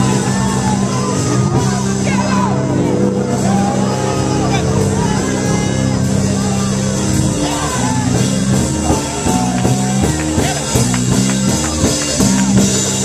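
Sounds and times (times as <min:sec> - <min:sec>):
bass: 0:00.0 - 0:13.0
keyboard chords: 0:00.0 - 0:13.0
drum hits: 0:07.3 - 0:13.0.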